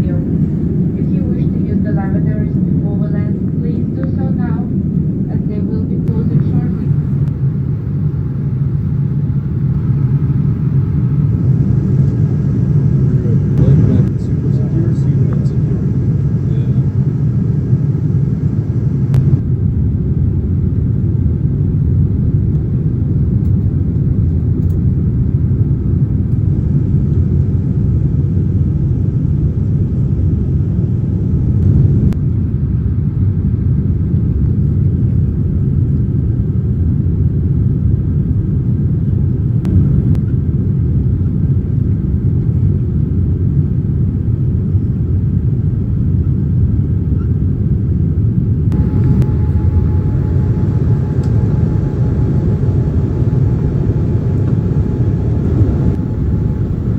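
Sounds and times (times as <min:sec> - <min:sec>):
airliner cabin engine rumble: 0:00.0 - 0:56.9
faint clicks: 0:50.9 - 0:52.0.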